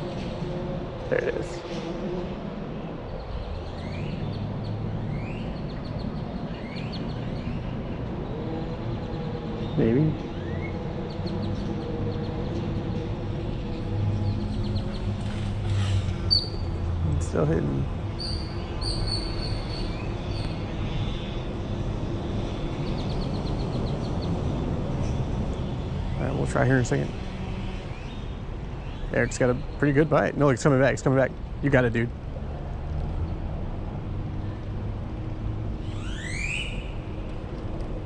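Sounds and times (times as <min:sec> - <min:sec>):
birds chirping: 0:00.0 - 0:32.1, 0:35.7 - 0:38.0
birds whistling: 0:09.1 - 0:12.6, 0:13.6 - 0:16.7, 0:18.1 - 0:21.3, 0:35.8 - 0:37.2.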